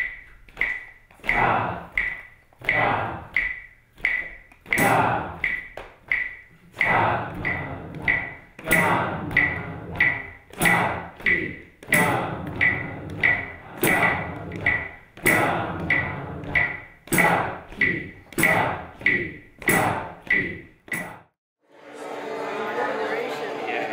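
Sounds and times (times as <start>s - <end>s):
percussion strokes ringing: 3.4s - 11.2s, 11.9s - 17.6s.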